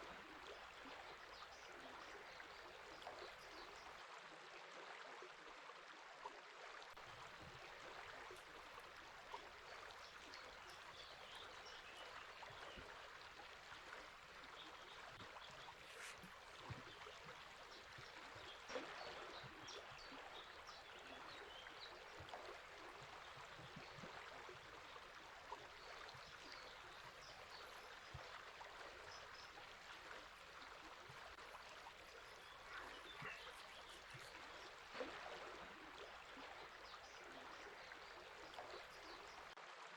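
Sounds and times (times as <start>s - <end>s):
river water running: 0.0s - 5.0s, 6.4s - 39.9s
faint bird chirps: 9.3s - 39.5s.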